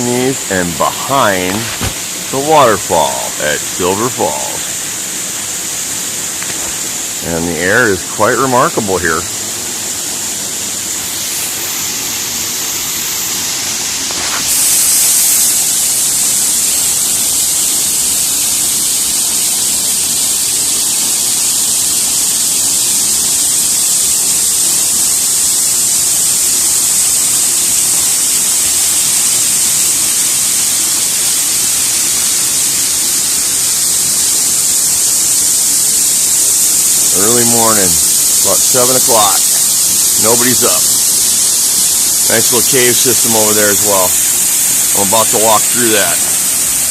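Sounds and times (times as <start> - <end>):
waterfall rushing: 0.0 - 16.7, 29.6 - 46.9.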